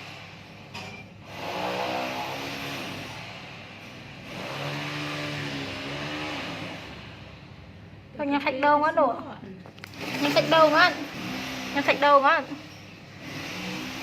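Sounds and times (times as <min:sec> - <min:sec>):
vehicle engine revving: 0:01.3 - 0:03.2, 0:04.2 - 0:07.4, 0:09.9 - 0:12.3, 0:13.2 - 0:14.0.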